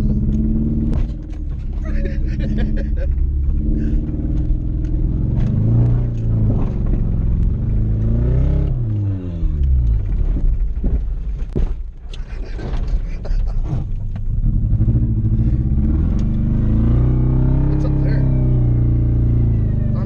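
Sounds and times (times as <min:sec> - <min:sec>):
car engine pulling under load: 0:00.0 - 0:20.0
car bumping over rough ground: 0:00.1 - 0:08.2, 0:09.5 - 0:14.4.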